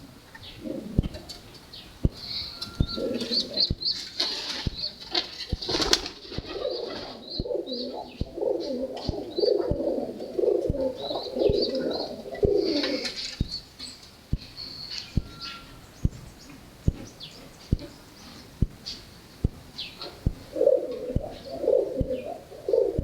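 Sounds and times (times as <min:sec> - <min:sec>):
pigeons cooing: 0:00.0 - 0:23.0
soft thumps: 0:00.9 - 0:01.4, 0:08.2 - 0:13.6, 0:14.3 - 0:14.6, 0:16.0 - 0:21.4, 0:22.0 - 0:22.2.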